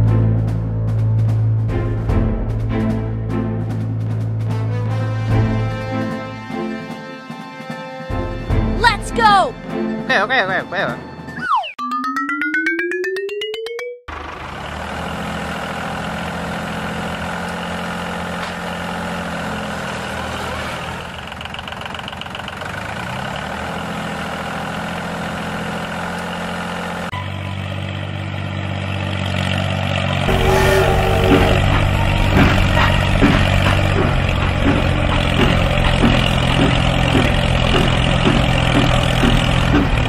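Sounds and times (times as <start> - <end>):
tractor engine running: 14.1 - 40.0
sharp knocks: 30.3 - 40.0.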